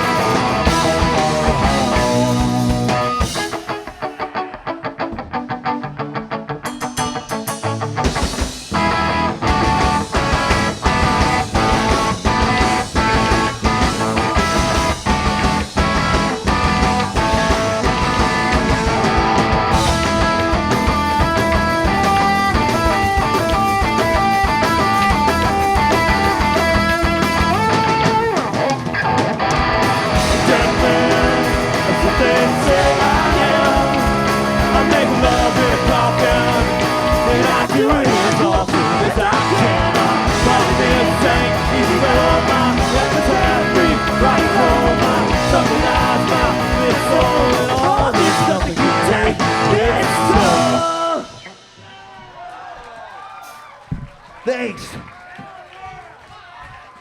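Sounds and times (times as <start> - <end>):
busy electric guitar line: 0.0 - 51.8
live rock band playing: 0.0 - 51.8
drum hits: 7.9 - 28.3, 29.6 - 52.4.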